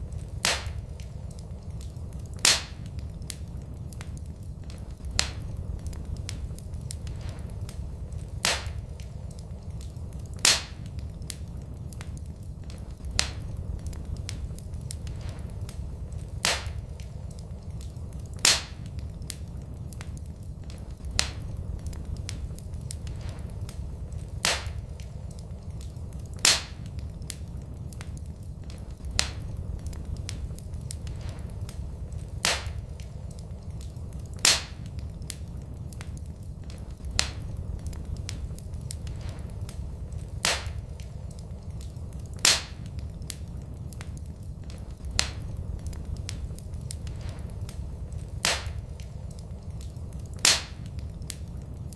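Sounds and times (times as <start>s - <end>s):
low rumble: 0.0s - 51.9s
sharp pops of fire: 0.0s - 51.9s
wood fire crackling: 0.0s - 51.9s.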